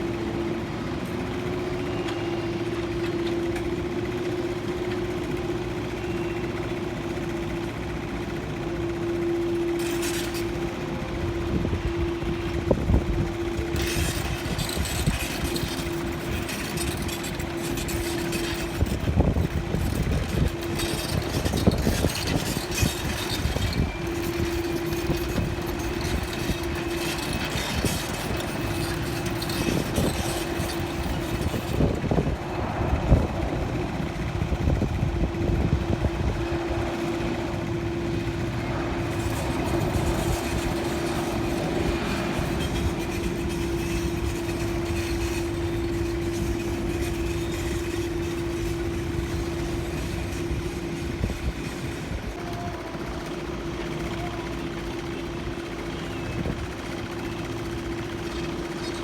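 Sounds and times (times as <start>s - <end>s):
engine droning hum: 0.0s - 59.0s
rough uneven rumble: 8.8s - 54.4s.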